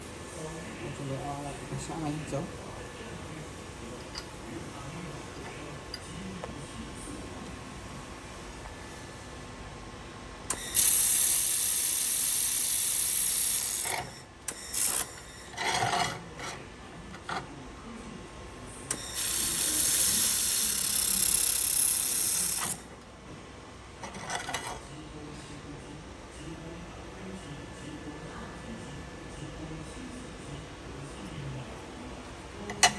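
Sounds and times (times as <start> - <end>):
laser welder hissing: 10.5 - 15.5, 18.9 - 22.8.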